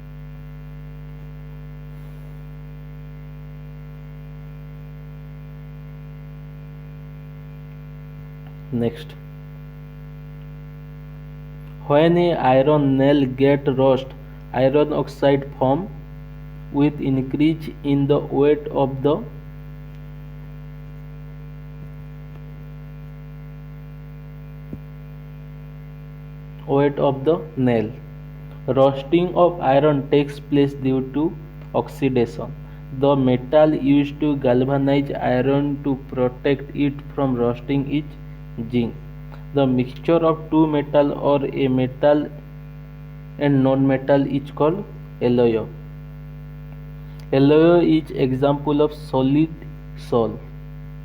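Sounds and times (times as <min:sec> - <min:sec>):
electrical hum: 0:00.0 - 0:51.0.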